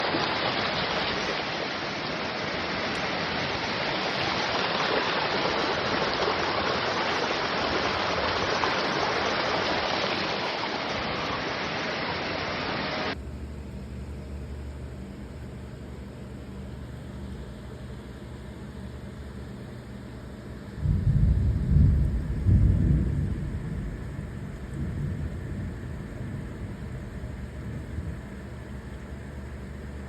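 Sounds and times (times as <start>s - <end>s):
floodwater rushing: 0.0s - 13.2s.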